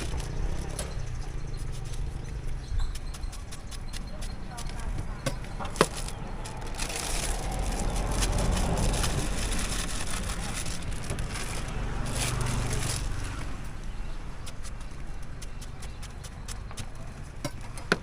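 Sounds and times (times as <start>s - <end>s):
vehicle engine rumble passing: 0.0s - 3.0s, 4.6s - 14.4s
tyre noise: 0.0s - 13.8s.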